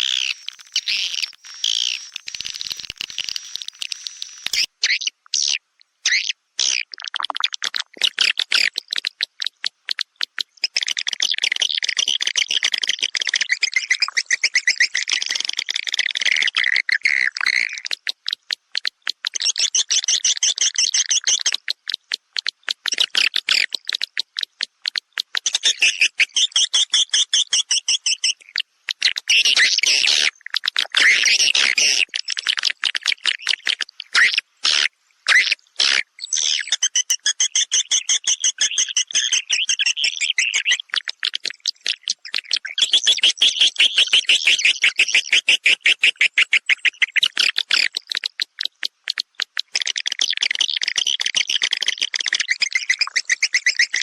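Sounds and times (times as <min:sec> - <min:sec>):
separate clicks: 0:00.0 - 0:04.7
swiftlets twittering: 0:00.0 - 0:04.7.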